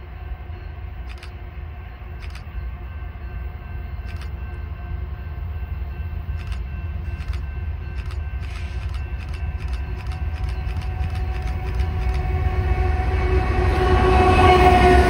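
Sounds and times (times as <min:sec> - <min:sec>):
diesel locomotive rumble: 0:00.0 - 0:15.0
sharp clicks: 0:02.2 - 0:02.5, 0:04.1 - 0:04.4, 0:06.4 - 0:07.4, 0:08.0 - 0:12.3.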